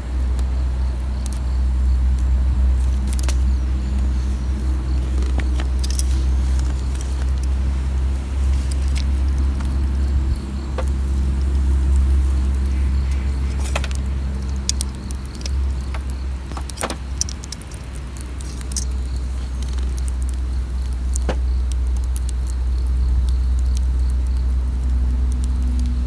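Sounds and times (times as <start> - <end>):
campfire crackling and popping: 0.0 - 26.0
low rumble: 0.0 - 26.0.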